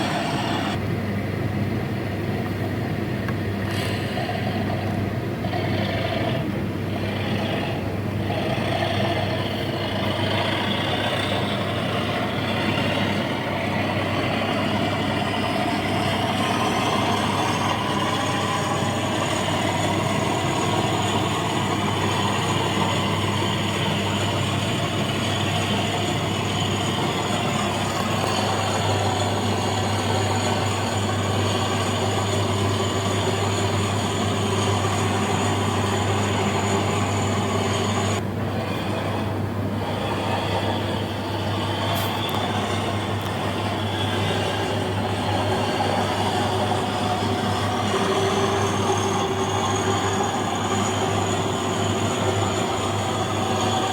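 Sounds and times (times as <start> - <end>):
high whine: 0.0 - 0.9, 2.9 - 53.9
low hum: 0.0 - 53.9
model diesel locomotive engine: 0.0 - 53.9.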